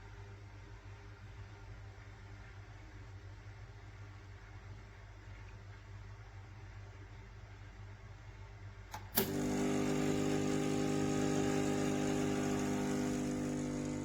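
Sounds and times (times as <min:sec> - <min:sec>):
espresso machine pump click: 0:09.0 - 0:14.0
espresso machine pump humming: 0:09.0 - 0:14.0.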